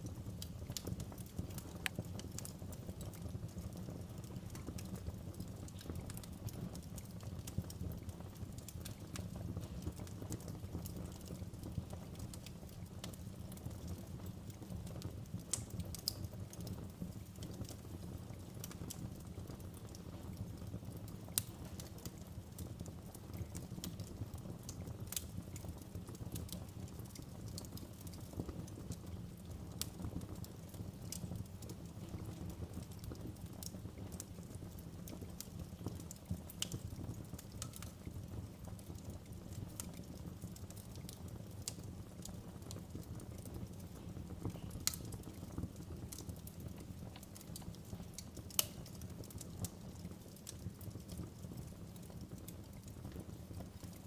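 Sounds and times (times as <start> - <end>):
fire crackling and popping: 0.0 - 54.0
fire flames rumbling: 0.0 - 54.0.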